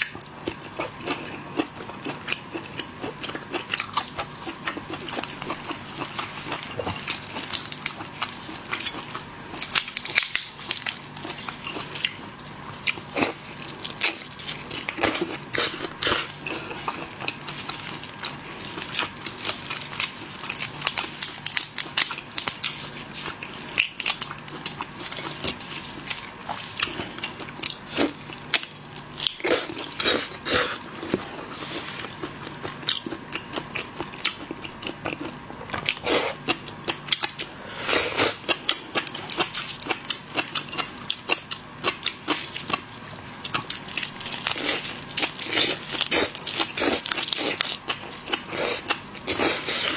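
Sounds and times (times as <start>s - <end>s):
chewing seafood with crunches: 0.0s - 49.9s.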